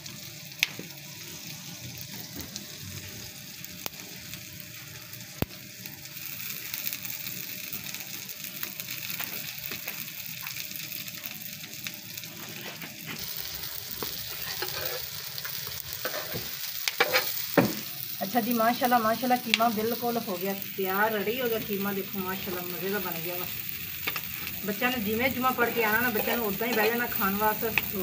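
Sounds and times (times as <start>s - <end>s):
meat sizzling on a pan: 0.0s - 28.0s
spatula stirring on a pan: 12.4s - 17.8s, 25.5s - 28.0s.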